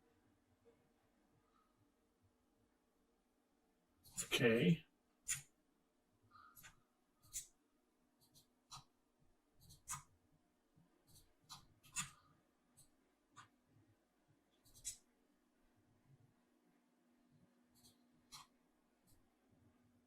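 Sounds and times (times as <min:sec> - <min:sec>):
computer mouse clicks: 0:09.6 - 0:10.1, 0:11.1 - 0:12.2, 0:17.8 - 0:19.2.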